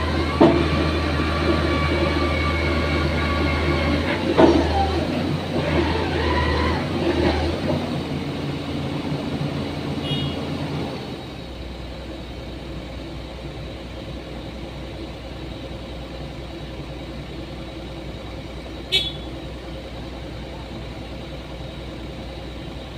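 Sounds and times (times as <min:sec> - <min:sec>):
excavator engine running: 0:00.0 - 0:22.9.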